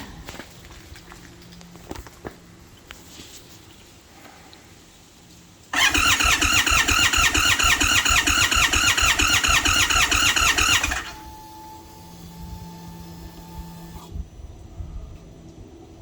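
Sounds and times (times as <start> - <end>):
motorcycle starter cranking: 5.7 - 11.5.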